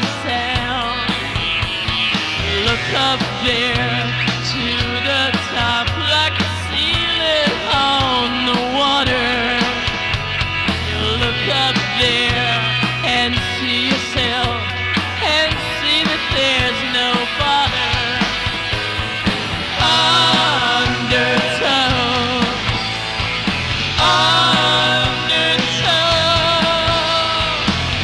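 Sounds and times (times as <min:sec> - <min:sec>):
drums: 0:00.0 - 0:28.0
electric lead guitar with bends: 0:00.0 - 0:28.0
sustained bass notes: 0:00.0 - 0:28.0.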